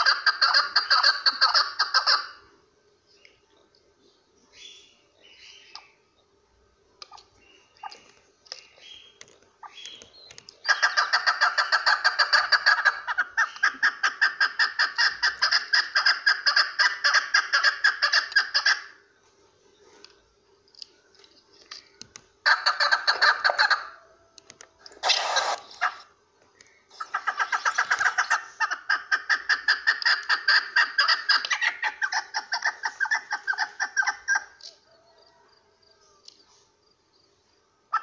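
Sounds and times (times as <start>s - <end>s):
partridge clucking calls: 0.0s - 2.5s, 7.0s - 19.0s, 20.7s - 35.4s
faint bird chirps: 0.0s - 38.0s.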